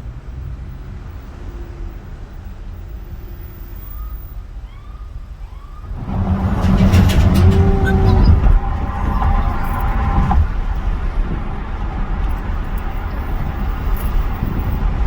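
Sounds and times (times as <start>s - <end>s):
car road and engine noise: 0.0s - 15.0s
faint rising and falling tones: 5.6s - 10.2s.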